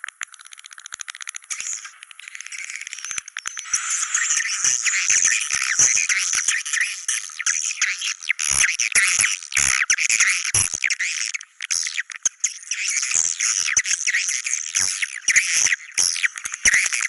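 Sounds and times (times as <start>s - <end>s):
sharp clicks: 0.0s - 3.8s
swiftlets twittering: 1.5s - 10.2s.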